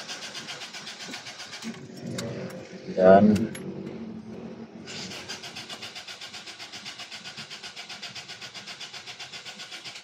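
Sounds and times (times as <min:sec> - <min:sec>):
starter motor cranking engine: 0:00.0 - 0:02.2, 0:04.9 - 0:10.0.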